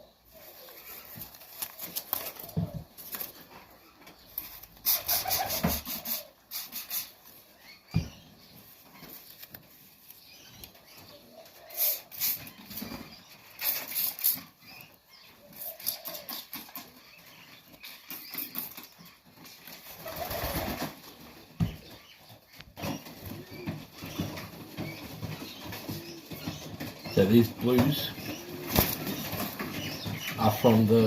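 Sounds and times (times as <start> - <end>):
pigeon wings flapping: 19.8 - 21.1, 27.9 - 30.0.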